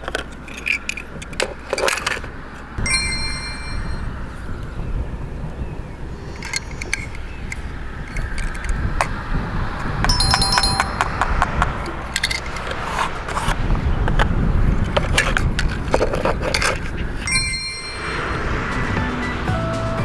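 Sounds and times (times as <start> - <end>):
plastic toy pieces clicking and knocking: 0.0 - 2.7, 6.3 - 9.2, 10.1 - 17.3
toy cars rolling rumble: 0.0 - 2.8, 6.0 - 11.0, 11.6 - 19.8.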